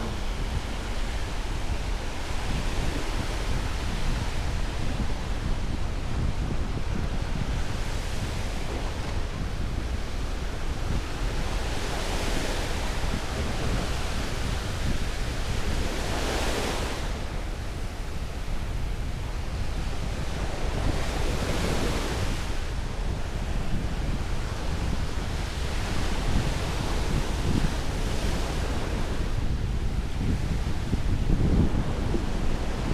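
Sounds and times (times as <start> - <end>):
ocean surf breaking: 0.0 - 6.3
wind buffeting microphone: 0.0 - 32.9.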